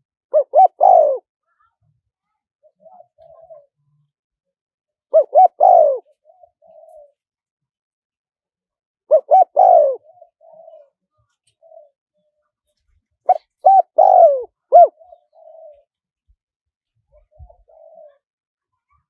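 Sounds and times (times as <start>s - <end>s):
dove cooing: 0.3s - 1.3s, 2.6s - 3.7s, 5.1s - 7.2s, 9.1s - 12.0s, 13.3s - 15.9s, 17.1s - 18.2s.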